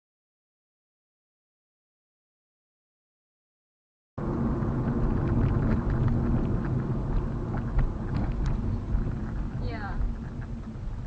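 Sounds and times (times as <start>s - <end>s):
vehicle engine and road rumble: 4.2s - 11.0s.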